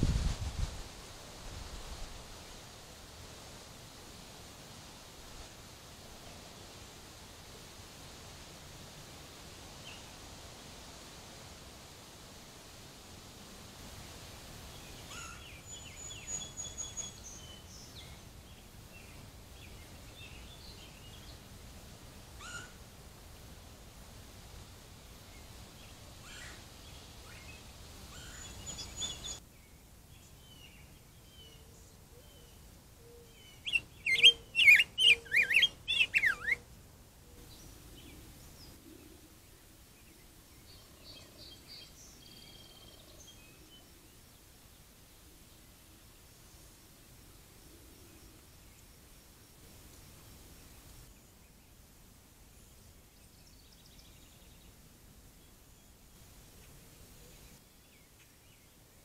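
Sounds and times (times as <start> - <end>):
songbirds whistling: 15.1 - 18.2, 28.1 - 29.4, 33.1 - 36.6.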